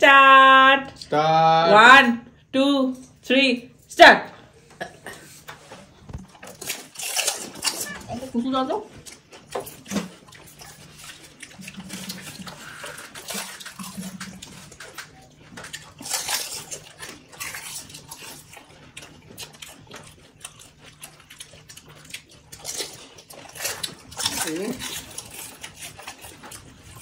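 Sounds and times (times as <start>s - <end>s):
slurping and chewing: 4.4s - 27.0s
crisp shells crunching: 6.5s - 8.0s.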